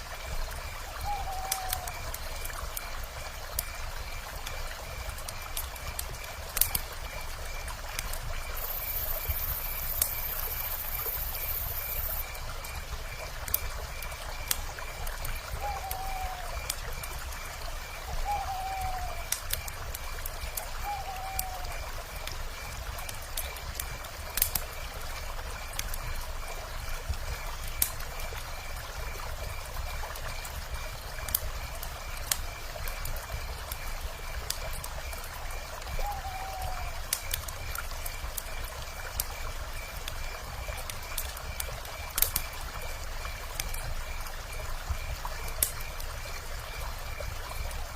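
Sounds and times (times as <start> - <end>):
wood fire crackling: 0.1 - 47.9
owl calls: 1.0 - 1.9, 15.6 - 16.6, 18.2 - 19.3, 20.8 - 21.7, 36.0 - 37.0.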